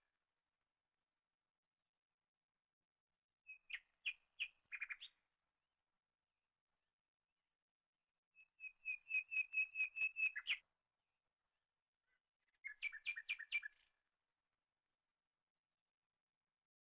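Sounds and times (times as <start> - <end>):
bird whistling repeated notes: 8.6 - 10.6.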